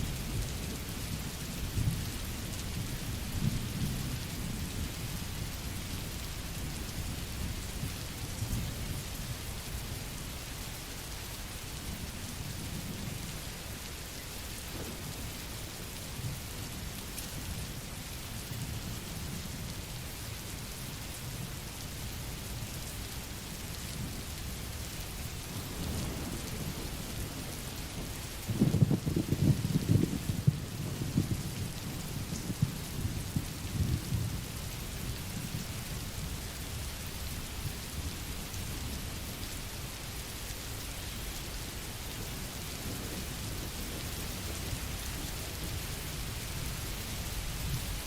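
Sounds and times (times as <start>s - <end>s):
rain hissing: 21.6s - 48.0s
rolling thunder rumble: 25.6s - 34.5s.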